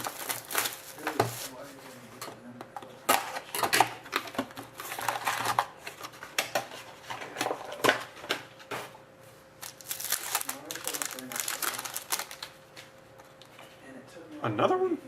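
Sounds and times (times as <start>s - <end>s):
wrapper crinkling and rustling: 0.0s - 1.8s, 9.6s - 12.7s.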